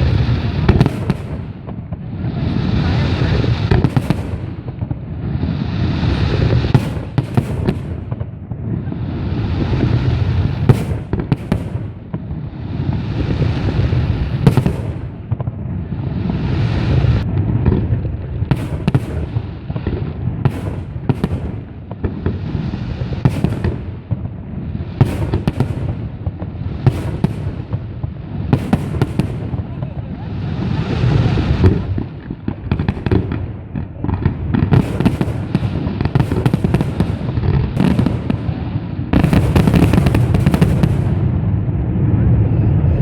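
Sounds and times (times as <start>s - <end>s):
fireworks bursting with bangs: 0.0s - 43.0s
rushing rumbling noise: 39.6s - 43.0s.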